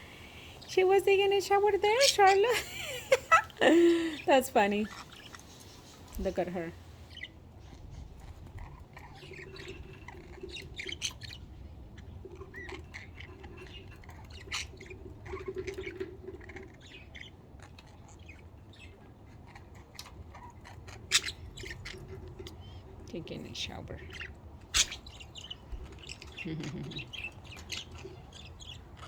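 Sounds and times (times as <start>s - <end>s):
budgerigars chirping: 0.0s - 7.4s, 20.4s - 22.0s, 23.3s - 28.9s.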